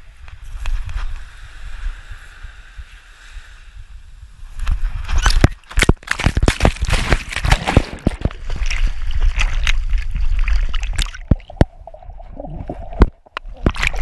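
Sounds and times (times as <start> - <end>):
water sloshing and splashing: 5.2 - 14.0.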